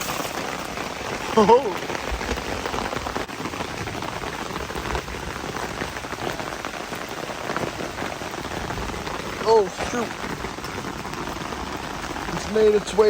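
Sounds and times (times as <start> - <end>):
heavy rain on a tarp: 0.0 - 13.0.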